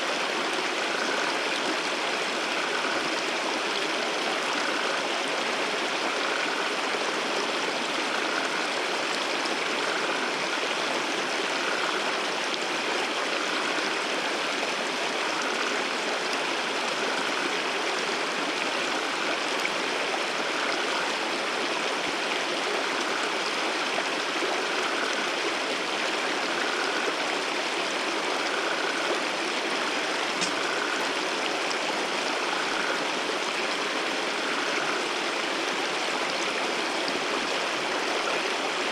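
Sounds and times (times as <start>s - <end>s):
rushing water from waterfall: 0.0s - 38.9s.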